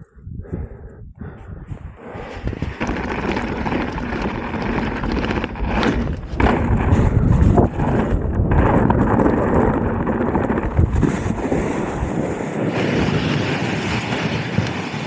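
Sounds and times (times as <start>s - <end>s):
wind buffeting microphone: 0.0s - 15.0s
bike clattering over rocks: 2.8s - 11.5s.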